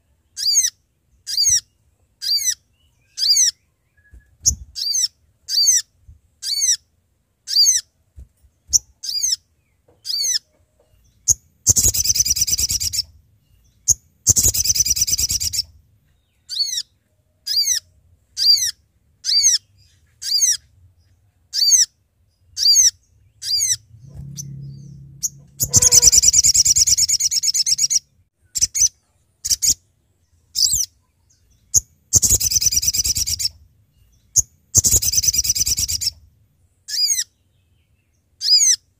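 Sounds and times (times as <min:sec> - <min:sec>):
bird rapid chattering trills: 0:22.6 - 0:28.0, 0:34.4 - 0:36.1
bird short falling notes: 0:23.5 - 0:27.0.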